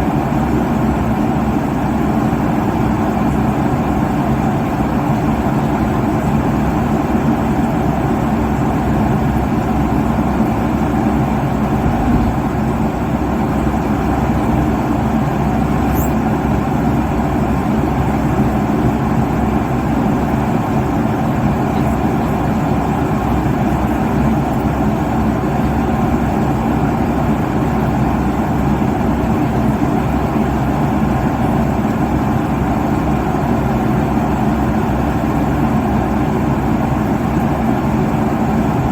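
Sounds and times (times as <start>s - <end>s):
airliner cabin engine rush: 0.0s - 38.9s
low hum: 15.6s - 16.4s.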